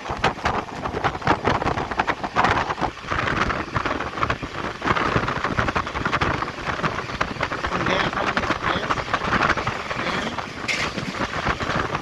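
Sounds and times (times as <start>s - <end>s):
train rushing and rattling: 0.0s - 12.0s
wind buffeting microphone: 0.0s - 12.0s.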